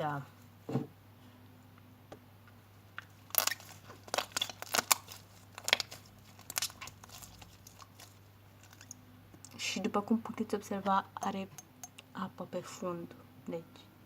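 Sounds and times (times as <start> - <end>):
wet slime crackling and popping: 3.0 - 9.0.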